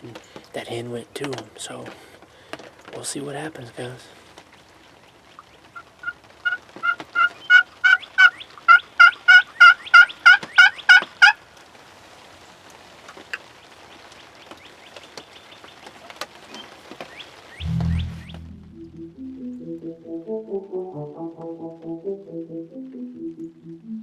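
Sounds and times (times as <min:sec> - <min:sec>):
turkey yelping: 0:05.8 - 0:11.4.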